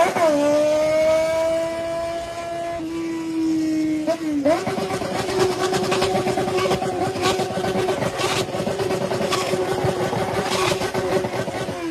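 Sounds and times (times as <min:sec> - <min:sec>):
motorcycle engine through loud exhaust: 0:00.0 - 0:11.9.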